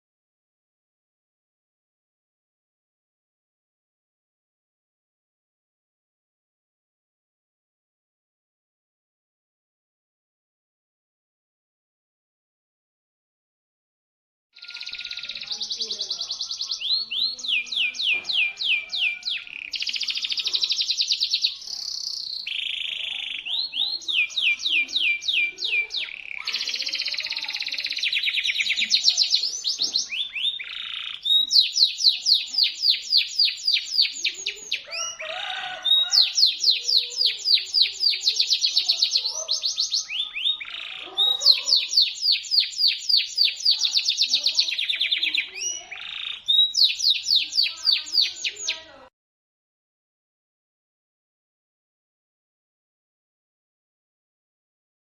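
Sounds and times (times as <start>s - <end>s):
canary singing trills: 14.6s - 49.1s.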